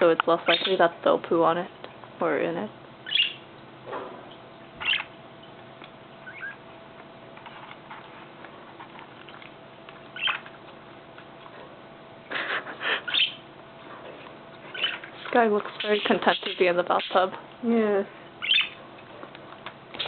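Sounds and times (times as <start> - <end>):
faint steady hum: 0.0 - 20.0
budgerigars chirping: 0.4 - 0.8, 3.0 - 3.4, 4.8 - 5.1, 6.2 - 6.6, 10.2 - 10.4, 13.0 - 13.4, 14.7 - 17.3, 18.4 - 18.8.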